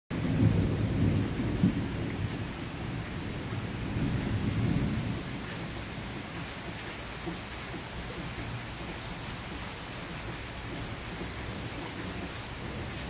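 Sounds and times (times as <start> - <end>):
rain falling on leaves: 0.1 - 13.0.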